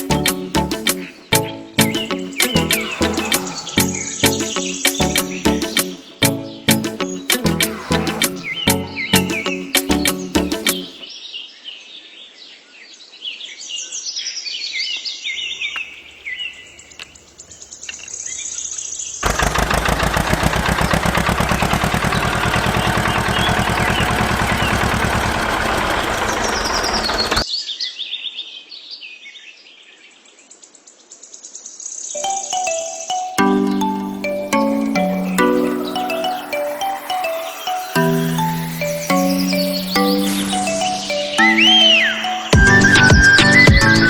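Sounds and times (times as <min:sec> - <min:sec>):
birds chirping: 0:00.0 - 0:11.1, 0:21.9 - 0:27.5, 0:32.2 - 0:44.0
fast-pulsing mechanical noise: 0:19.2 - 0:27.4.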